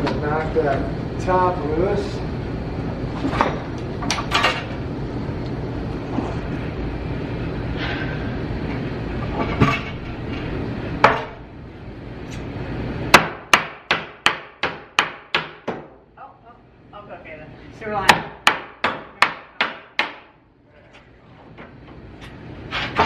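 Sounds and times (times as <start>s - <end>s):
hammer striking wooden plank: 13.2s - 16.0s, 18.1s - 20.3s.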